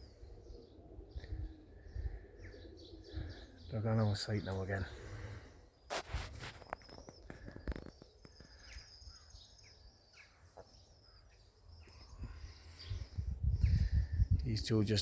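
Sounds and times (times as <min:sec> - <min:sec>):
wind rumble on microphone: 0:00.0 - 0:03.5, 0:12.0 - 0:15.0
small birds chirping: 0:00.0 - 0:15.0.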